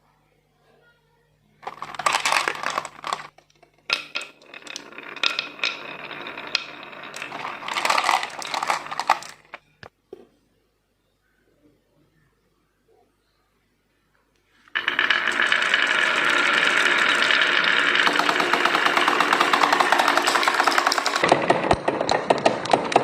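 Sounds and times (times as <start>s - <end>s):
marbles clattering down marble run: 1.6s - 9.6s, 14.7s - 23.0s.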